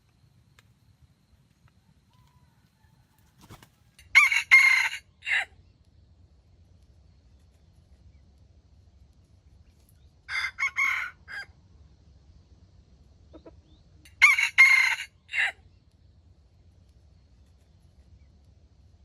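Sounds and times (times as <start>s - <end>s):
rooster crowing: 2.1s - 5.5s, 10.3s - 11.6s, 14.1s - 15.6s.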